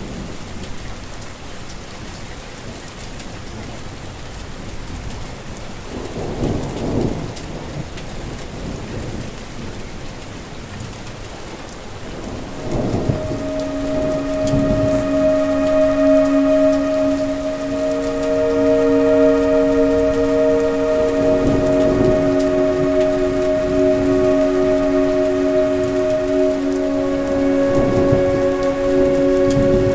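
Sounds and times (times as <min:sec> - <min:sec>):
heavy rain: 0:00.0 - 0:29.9
steady humming tone: 0:12.5 - 0:29.9.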